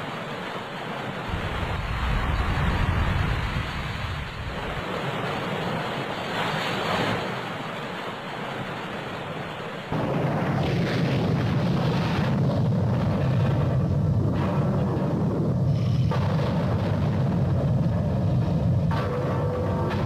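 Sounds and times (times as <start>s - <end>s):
sea and surf: 0.0s - 20.0s
wind buffeting microphone: 1.2s - 6.1s, 9.9s - 20.0s.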